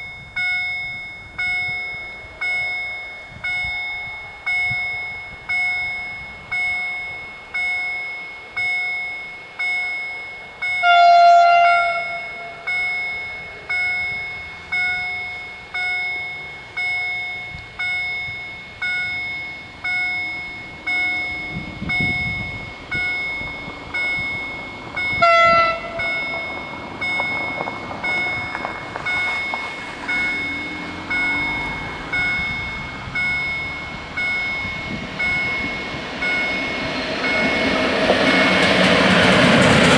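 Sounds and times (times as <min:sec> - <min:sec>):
level crossing warning bell: 0:00.0 - 0:39.9
train wheels rumbling on rail: 0:00.0 - 0:39.9
train horn blasts: 0:10.6 - 0:15.5, 0:25.0 - 0:26.8.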